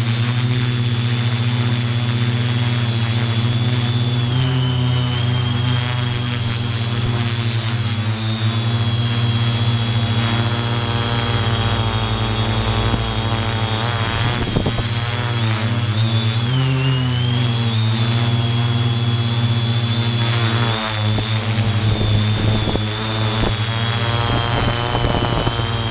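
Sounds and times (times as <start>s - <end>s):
drone motors buzzing: 0.0s - 25.9s.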